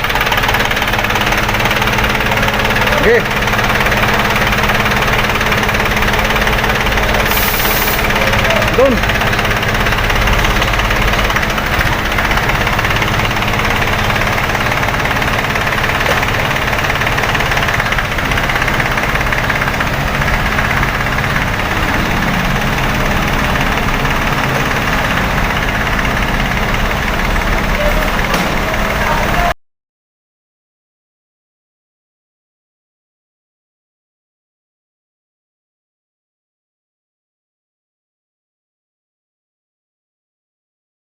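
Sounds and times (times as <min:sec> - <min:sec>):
engine idling: 0:00.0 - 0:29.6.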